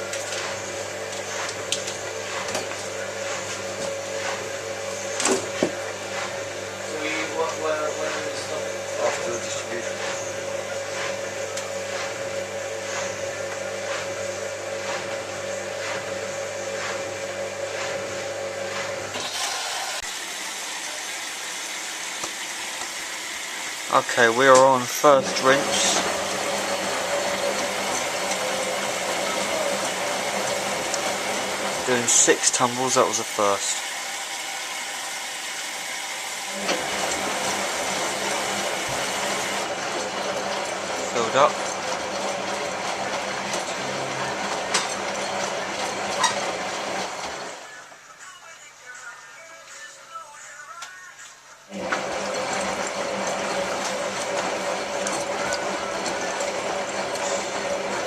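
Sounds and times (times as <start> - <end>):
washing machine drain pump: 0.0 - 47.7, 51.7 - 58.0
water hissing into drum: 16.9 - 42.4.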